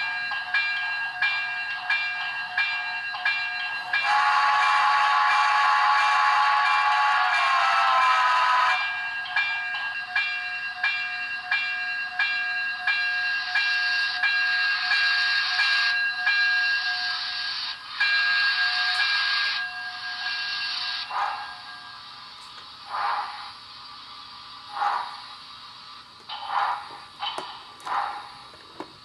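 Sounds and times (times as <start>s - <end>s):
locomotive bell ringing: 0.0s - 22.2s
steam whistle with falling pitch: 4.0s - 8.8s
steady hiss: 20.1s - 29.0s.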